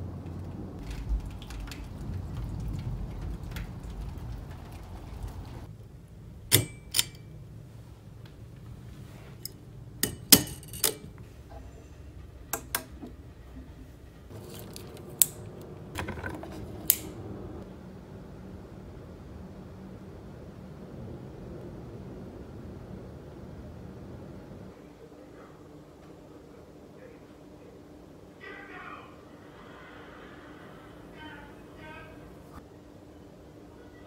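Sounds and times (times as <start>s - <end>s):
rain: 0.0s - 6.4s
thunder rumbling: 0.0s - 6.5s, 15.4s - 24.7s.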